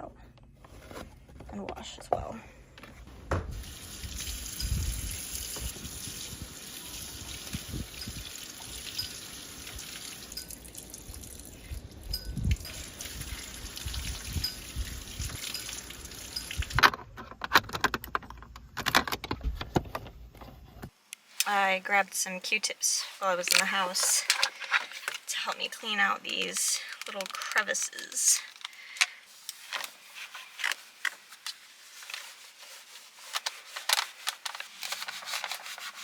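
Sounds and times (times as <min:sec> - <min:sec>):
water running and trickling: 0:03.6 - 0:16.8.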